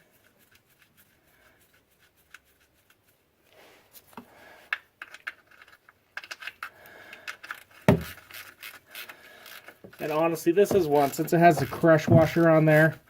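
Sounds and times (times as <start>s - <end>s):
drain plug clicking and scraping: 9.7s - 12.7s.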